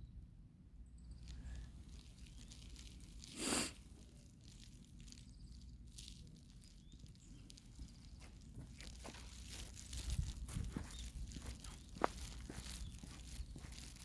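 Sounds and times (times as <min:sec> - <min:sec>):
outdoor rustling: 0:00.8 - 0:14.0
light footsteps: 0:07.2 - 0:14.0.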